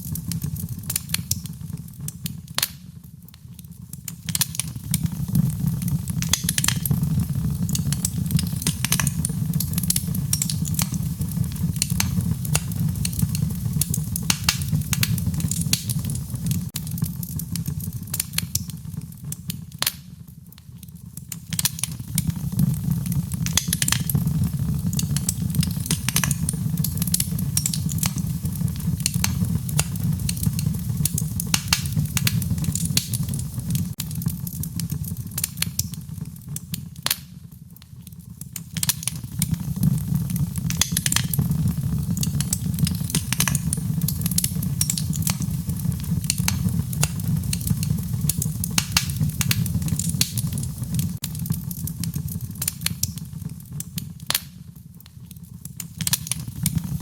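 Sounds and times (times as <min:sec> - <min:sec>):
wood fire crackling and popping: 0:00.0 - 0:57.0
low rush of flame: 0:04.3 - 0:19.4, 0:21.6 - 0:36.6, 0:39.3 - 0:53.6.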